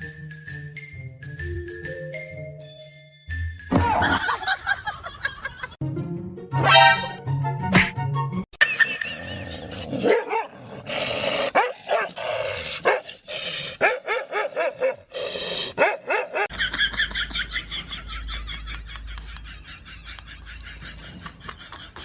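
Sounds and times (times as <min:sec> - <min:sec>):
dog barking and yelping: 0:10.0 - 0:10.6, 0:11.5 - 0:12.2, 0:12.8 - 0:13.1, 0:13.8 - 0:15.1, 0:15.8 - 0:16.5.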